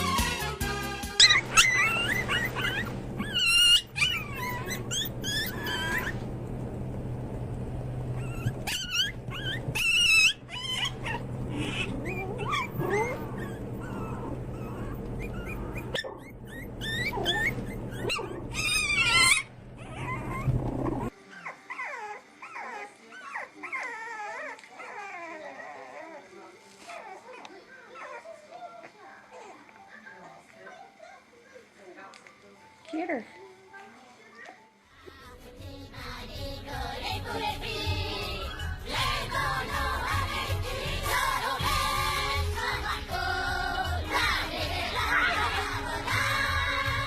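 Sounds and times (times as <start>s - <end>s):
dog whimpering and yipping: 1.2s - 6.3s, 8.1s - 30.2s
steady low hum: 1.4s - 21.2s.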